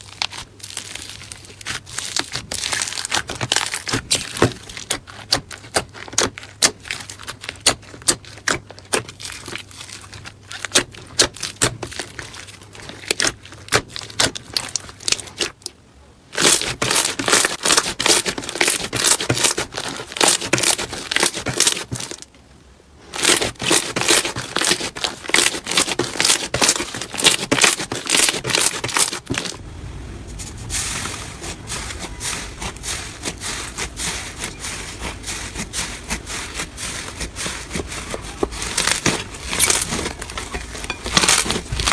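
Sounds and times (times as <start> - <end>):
slime crackling and popping: 0.0 - 15.7, 23.2 - 29.6, 31.0 - 41.9.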